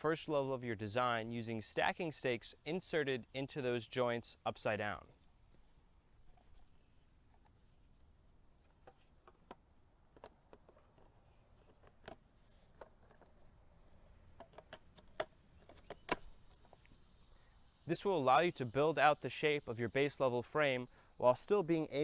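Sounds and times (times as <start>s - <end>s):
steady high-pitched whine: 0.0s - 22.0s
plastic parts clicking and knocking: 8.7s - 13.4s, 14.4s - 16.8s.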